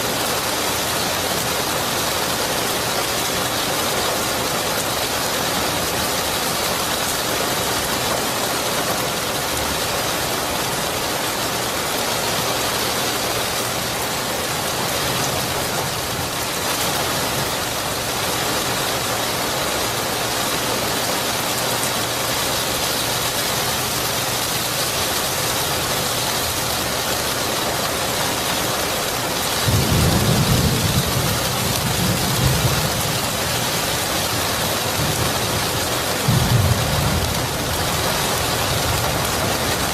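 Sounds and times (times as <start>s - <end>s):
heavy rain hissing: 0.0s - 39.9s
thunder rumbling: 29.6s - 39.9s.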